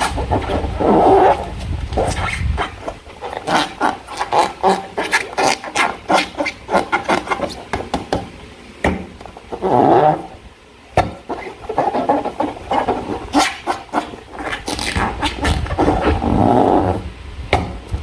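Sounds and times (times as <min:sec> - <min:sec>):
slime squelching: 0:00.0 - 0:07.7.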